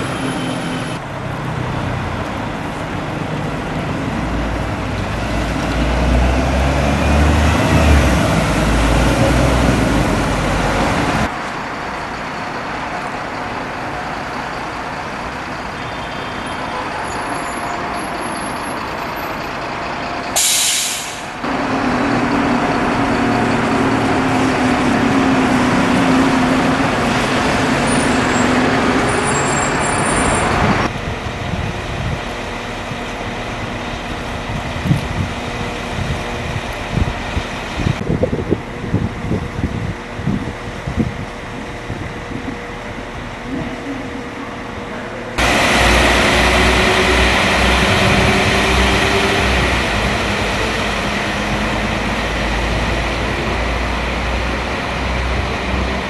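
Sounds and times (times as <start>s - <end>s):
diesel bus engine rumble: 0.0s - 56.0s
air brakes hissing: 20.3s - 21.4s.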